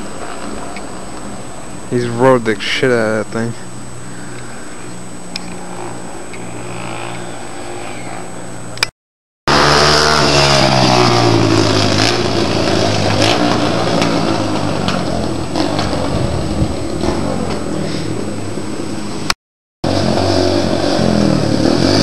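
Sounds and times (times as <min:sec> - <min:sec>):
motorcycle engine passing by: 0:05.6 - 0:08.6, 0:09.5 - 0:18.3, 0:19.8 - 0:22.0.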